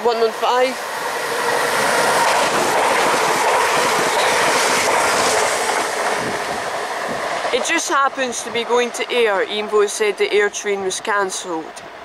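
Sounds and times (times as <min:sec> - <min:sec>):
train wheels rushing on rail: 0:00.0 - 0:12.0
wheels clickety-clack: 0:02.1 - 0:09.2.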